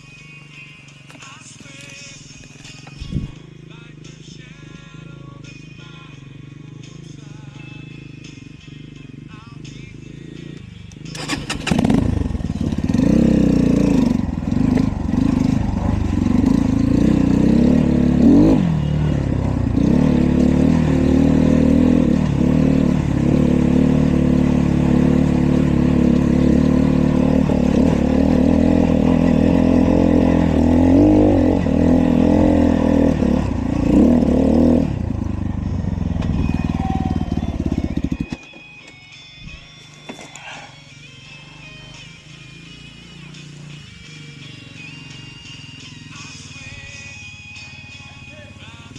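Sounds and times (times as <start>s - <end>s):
dirt bike engine revving: 10.2s - 38.4s.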